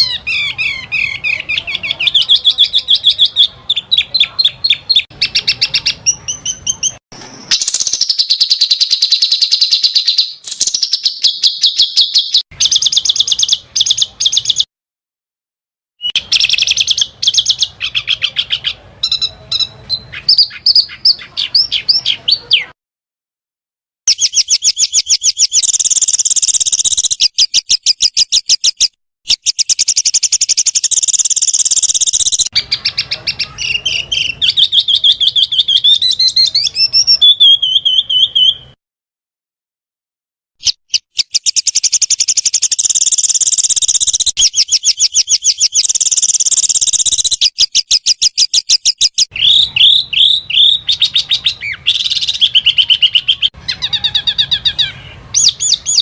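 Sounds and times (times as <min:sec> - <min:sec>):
songbird singing rapid notes: 0:00.0 - 0:14.7, 0:16.0 - 0:22.8, 0:24.1 - 0:38.8, 0:40.6 - 0:56.0.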